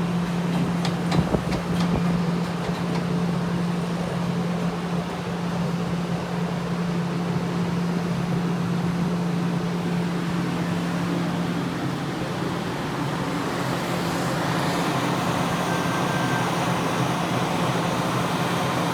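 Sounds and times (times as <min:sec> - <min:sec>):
electric train passing: 0:09.7 - 0:18.9.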